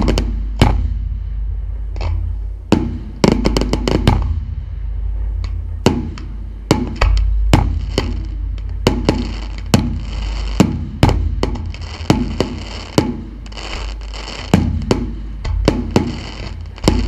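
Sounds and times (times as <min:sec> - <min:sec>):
fireworks crackling: 0:00.0 - 0:00.6, 0:02.7 - 0:04.4, 0:05.9 - 0:17.0
fireworks bangs: 0:00.0 - 0:01.2, 0:02.7 - 0:04.6, 0:05.8 - 0:17.0
low rumble: 0:00.0 - 0:17.0.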